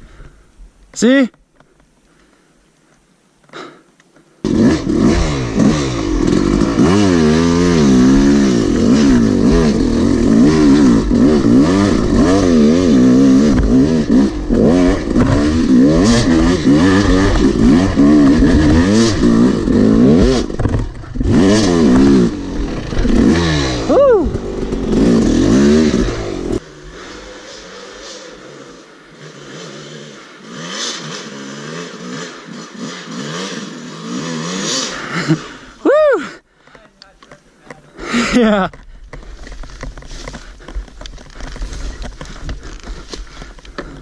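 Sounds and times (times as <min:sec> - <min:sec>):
two-stroke dirt bike engine revving: 0:04.4 - 0:35.9.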